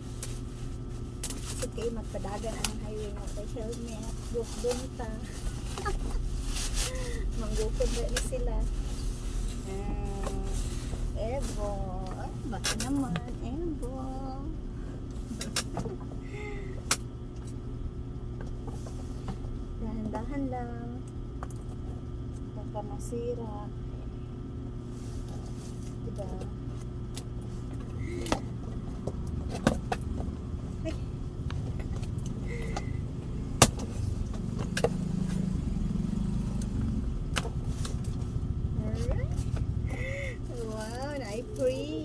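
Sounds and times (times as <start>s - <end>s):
steady low rumble: 0.0s - 42.0s.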